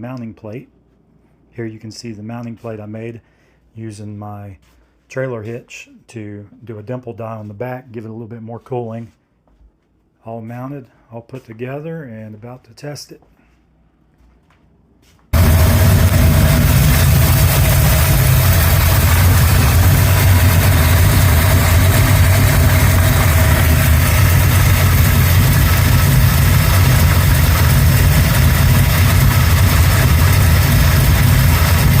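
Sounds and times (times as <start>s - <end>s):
car engine idling loudly: 15.4s - 32.0s.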